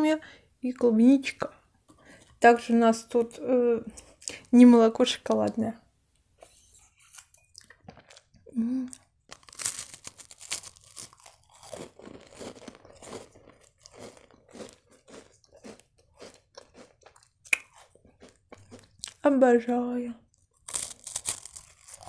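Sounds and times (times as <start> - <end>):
crunching and chewing cookies: 7.1 - 19.3, 20.2 - 22.0.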